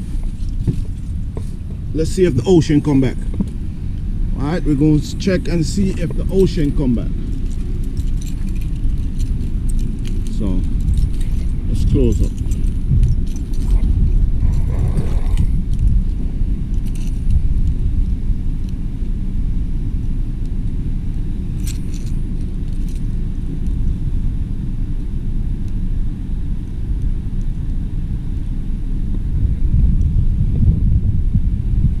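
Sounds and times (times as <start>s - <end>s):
keys jingling: 0.0s - 3.5s, 4.7s - 18.2s, 21.6s - 23.2s
wind buffeting microphone: 0.0s - 32.0s.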